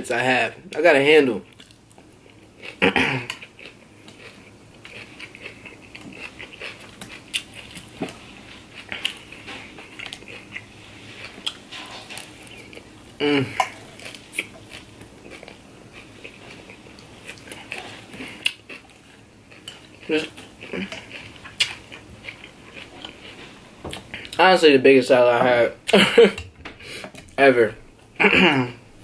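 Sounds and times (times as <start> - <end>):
crunchy chewing with mouth clicks: 1.4 - 24.4
fork scraping a glass dish: 11.7 - 12.7
person humming mmm: 13.2 - 13.7.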